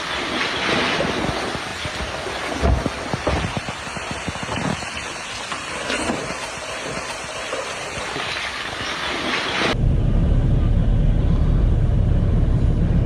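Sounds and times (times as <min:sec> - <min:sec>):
landslide rushing: 0:00.0 - 0:09.8.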